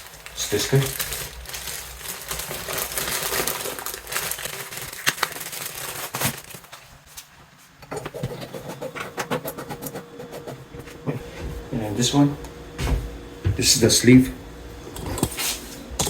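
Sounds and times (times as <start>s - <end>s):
rustling and crinkling: 0.0s - 8.8s.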